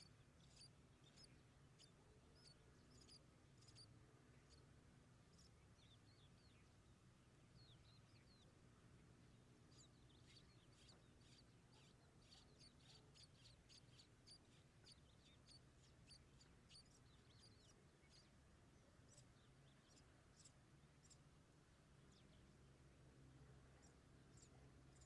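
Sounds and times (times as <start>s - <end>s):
nestling birds cheeping: 0.0s - 6.8s, 9.5s - 21.2s.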